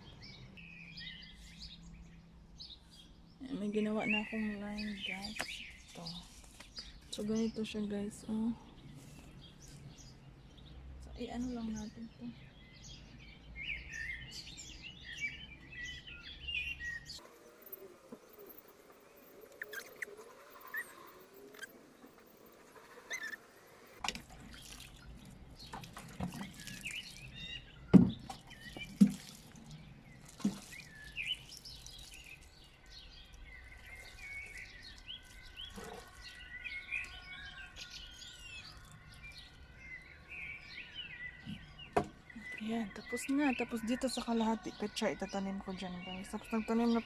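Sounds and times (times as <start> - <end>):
small birds chirping: 0.0 - 47.0
knocks and thumps in soil: 24.0 - 32.6.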